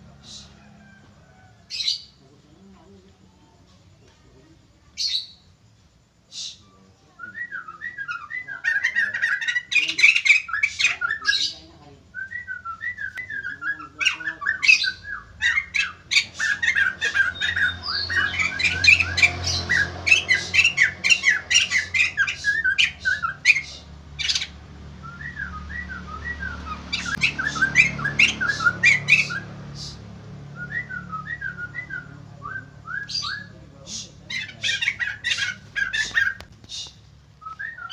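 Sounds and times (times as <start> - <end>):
bird loud squawking: 7.6 - 11.8, 13.0 - 24.6, 25.2 - 30.1, 31.2 - 37.9
bird quick chirping song: 12.4 - 37.9.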